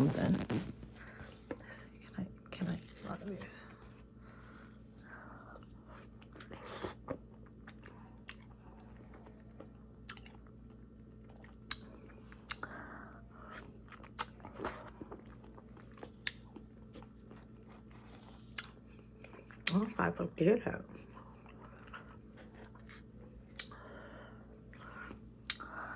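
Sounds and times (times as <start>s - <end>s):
person chewing with wet mouth clicks: 6.2s - 12.7s, 13.5s - 19.8s, 23.5s - 23.8s, 25.1s - 25.7s.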